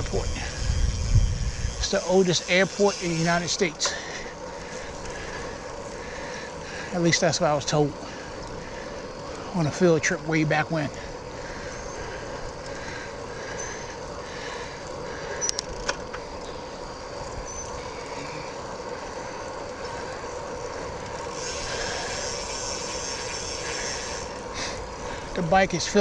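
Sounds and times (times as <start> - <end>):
wind on microphone: 0.0 - 2.1
bike tyres hissing on wet pavement: 0.0 - 26.0.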